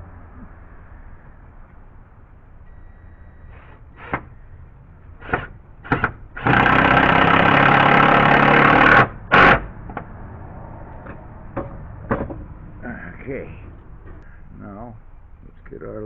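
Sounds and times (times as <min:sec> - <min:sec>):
cordless drill driving a screw: 0:05.2 - 0:09.6.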